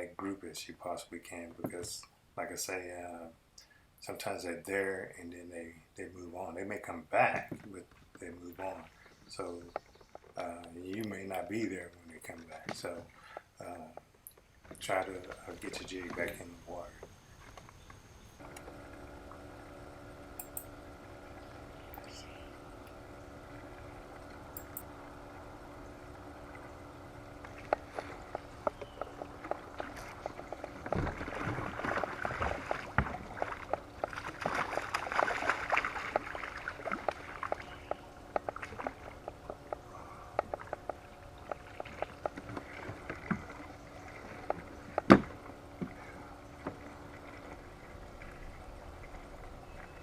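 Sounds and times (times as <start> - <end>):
water sloshing around boat: 6.4 - 50.0
sharp clicks: 20.4 - 20.7, 24.5 - 24.9.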